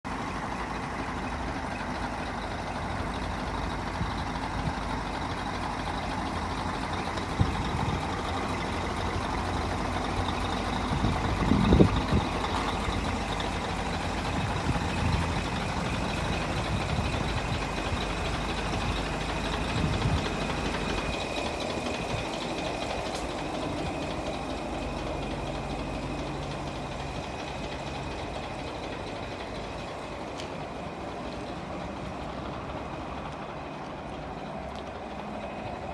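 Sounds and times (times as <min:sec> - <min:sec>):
diesel truck engine idling: 0:00.1 - 0:35.9.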